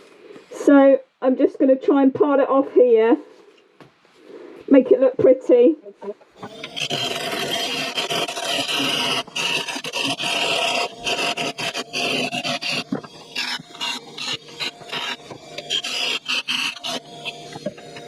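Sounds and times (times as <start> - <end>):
lathe tool scraping squeal: 6.4 - 18.0.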